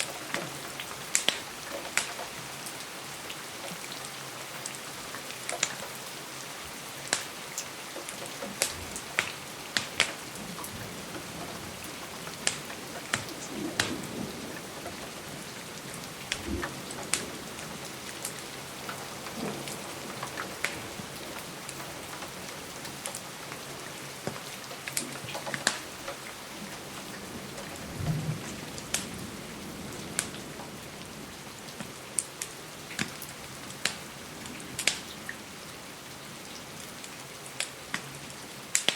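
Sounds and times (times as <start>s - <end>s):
wood fire crackling: 0.0s - 2.2s, 7.1s - 27.7s, 31.7s - 35.2s
rain hiss: 0.0s - 38.9s.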